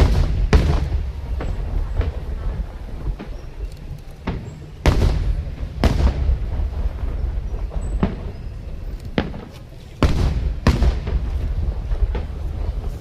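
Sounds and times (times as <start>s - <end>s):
sharp cracking booms: 0.0s - 3.4s, 4.2s - 13.0s
fireworks bursting: 0.0s - 13.0s
low rumble of explosions: 0.0s - 13.0s.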